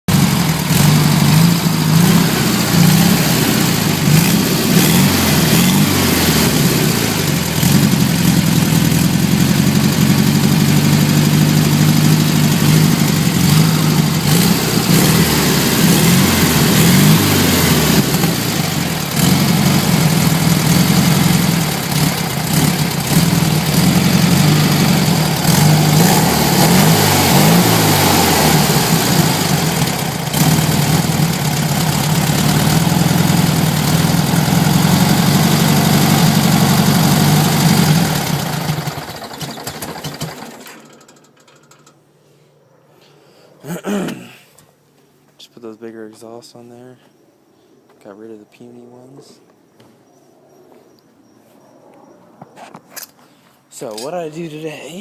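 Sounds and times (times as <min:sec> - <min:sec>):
car engine idling and revving: 0:00.1 - 0:40.8.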